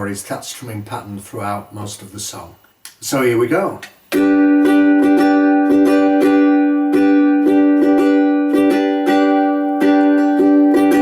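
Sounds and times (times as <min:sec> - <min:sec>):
ukulele strumming: 0:04.1 - 0:11.0.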